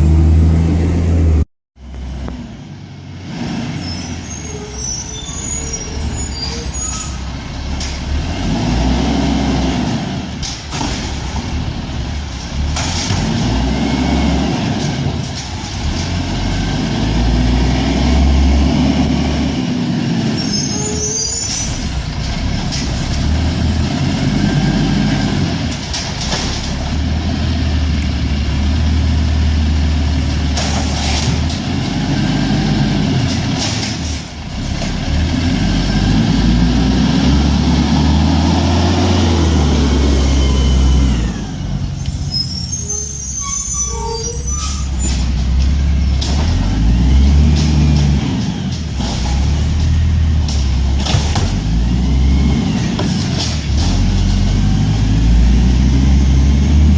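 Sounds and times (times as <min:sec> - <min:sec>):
garbage truck engine running: 0:45.1 - 0:56.9.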